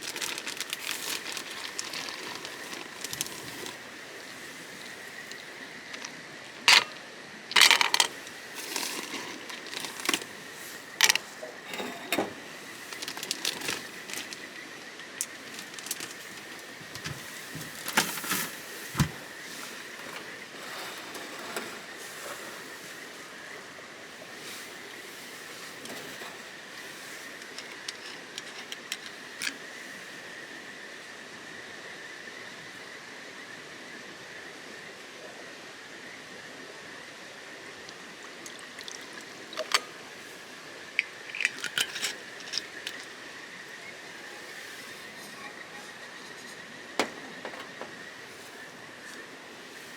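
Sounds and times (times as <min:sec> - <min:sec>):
campfire crackling: 0:00.0 - 0:29.7, 0:37.9 - 0:43.9
steady outdoor hiss: 0:00.0 - 0:49.9
sharp clicks and clinks: 0:41.0 - 0:43.1.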